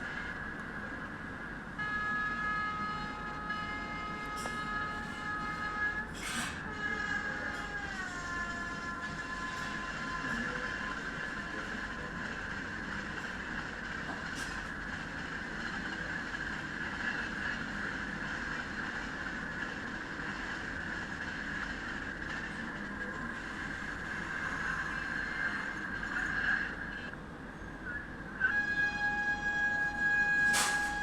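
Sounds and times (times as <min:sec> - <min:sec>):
train wheels rolling on rail: 0:02.8 - 0:26.9.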